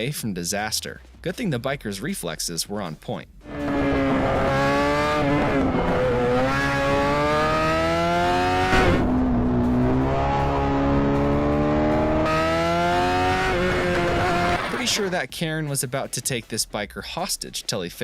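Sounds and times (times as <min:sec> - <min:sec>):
motorcycle engine accelerating: 0:03.4 - 0:15.0.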